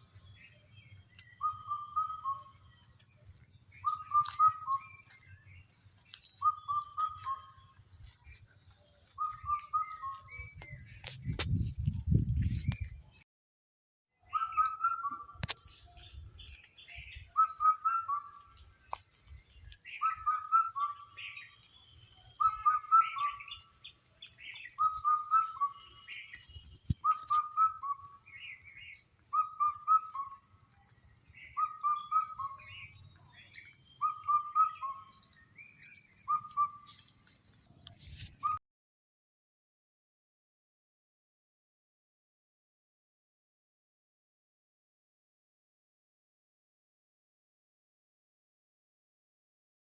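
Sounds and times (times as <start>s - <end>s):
other birds chirping: 0.0s - 11.9s, 14.2s - 38.6s
bird whistling call: 1.4s - 2.6s, 3.8s - 5.1s, 6.4s - 7.6s, 9.2s - 10.6s, 14.3s - 15.4s, 17.3s - 18.5s, 20.0s - 21.6s, 22.3s - 23.7s, 24.6s - 28.2s, 29.3s - 30.5s, 31.5s - 33.0s, 34.0s - 37.0s, 38.2s - 38.6s.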